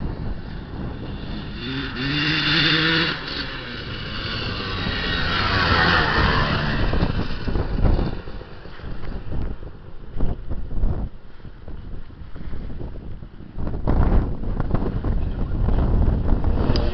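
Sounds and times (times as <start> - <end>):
dirt bike engine revving: 0.5 - 9.4, 16.4 - 16.9.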